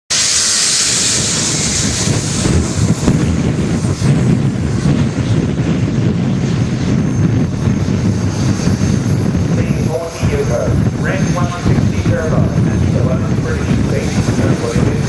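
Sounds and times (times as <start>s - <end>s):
model aircraft engine whine: 0.1s - 15.0s
noisy rumble and hiss: 9.3s - 15.0s.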